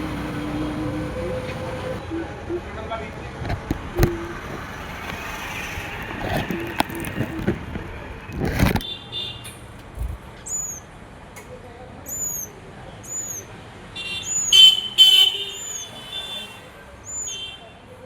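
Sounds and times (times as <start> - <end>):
small birds chirping: 10.0 - 10.9, 12.0 - 16.0, 17.0 - 17.6.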